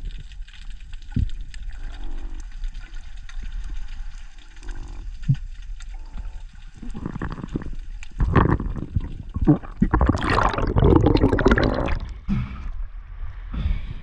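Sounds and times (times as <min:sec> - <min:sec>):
underwater crackle of clicks: 0:00.0 - 0:10.5
low buzzing croaks: 0:04.6 - 0:12.0.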